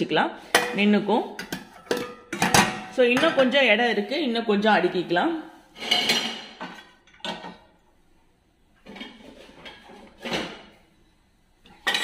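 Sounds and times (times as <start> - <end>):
dishes clattering into racks: 0.4 - 3.5, 5.8 - 7.8, 8.8 - 10.8, 11.6 - 12.0.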